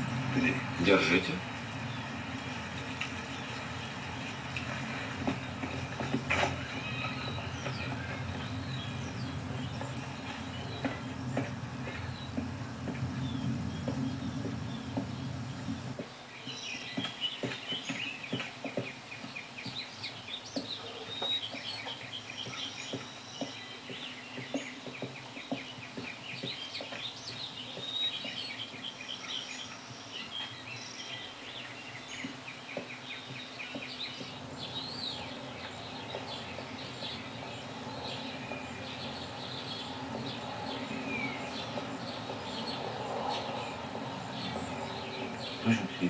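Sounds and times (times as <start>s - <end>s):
songbirds chirping and trilling: 0.0s - 46.0s.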